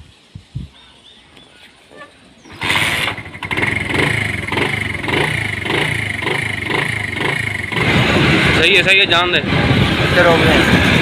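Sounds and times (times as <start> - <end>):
motorcycle engine starting and running: 2.4 - 11.0.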